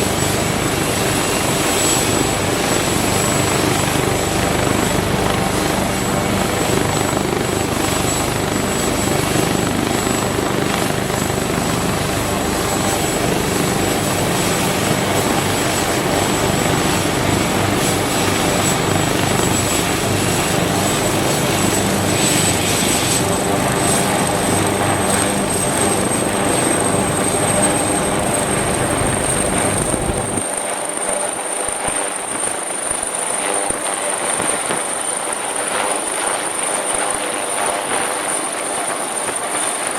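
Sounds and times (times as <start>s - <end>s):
high turbine whine: 0.0s - 30.6s
helicopter rotor and turbine: 0.0s - 39.9s.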